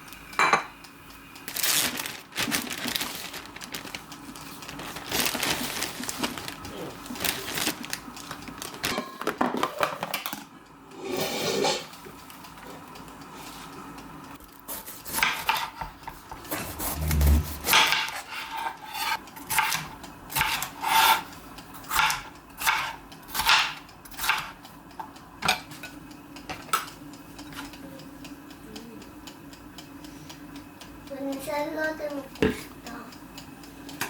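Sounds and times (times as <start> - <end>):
kitchenware scraping and rubbing: 11.0 - 11.9, 14.8 - 21.3.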